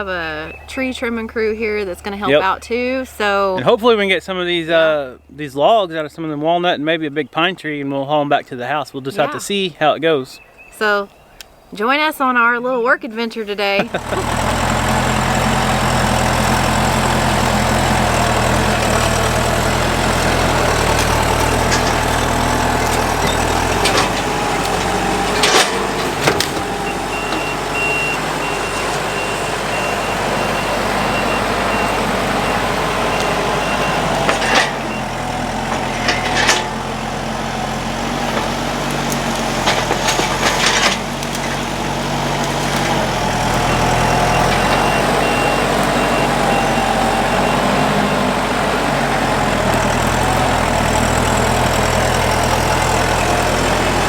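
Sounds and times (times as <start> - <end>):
heavy vehicle engine running: 0.0 - 4.6, 13.6 - 54.0
sharp clunks and knocks: 16.5 - 29.5, 33.2 - 37.0, 38.1 - 43.1
backup alarm beeping: 20.0 - 36.2, 43.6 - 48.4.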